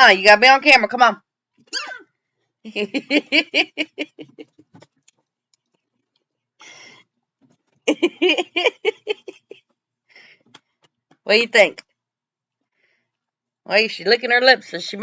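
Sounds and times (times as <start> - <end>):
breathy sound: 6.6 - 7.1
person laughing: 7.9 - 9.6.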